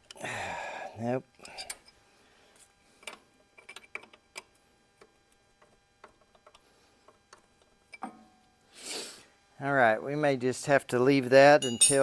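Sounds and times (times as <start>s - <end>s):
wrench and tools tapping on metal: 11.6s - 12.0s.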